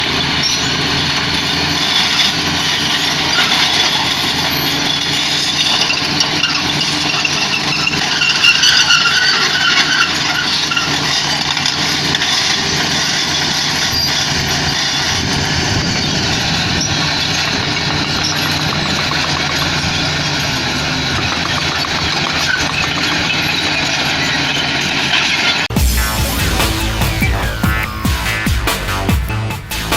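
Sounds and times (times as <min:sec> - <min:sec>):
heavy machinery diesel engine: 0:00.0 - 0:29.9
brief high squeals: 0:05.8 - 0:11.0.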